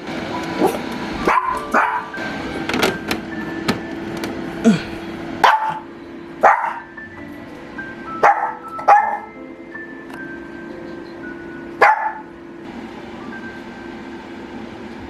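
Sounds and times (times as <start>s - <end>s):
background music with held notes: 0.0s - 5.4s, 6.0s - 15.0s
dog barking: 0.6s - 2.1s, 5.4s - 6.9s, 8.2s - 9.3s, 11.8s - 12.3s.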